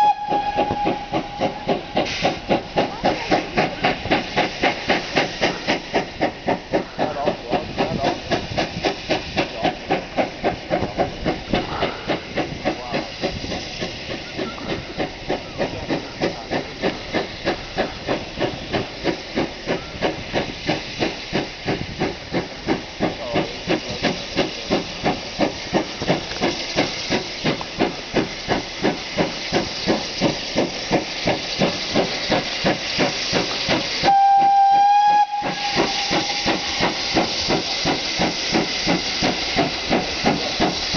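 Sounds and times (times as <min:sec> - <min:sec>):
steam whistle blast: 0:00.0 - 0:02.2, 0:34.0 - 0:37.2
steam locomotive exhaust beats: 0:00.0 - 0:40.9.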